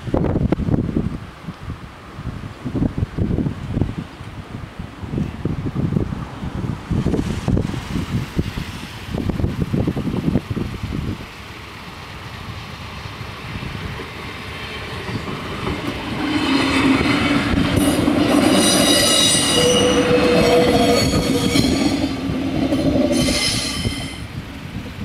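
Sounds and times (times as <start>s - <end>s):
train running rumble: 2.8s - 25.0s
high-pitched wheel squeal: 18.5s - 22.2s, 22.8s - 24.3s.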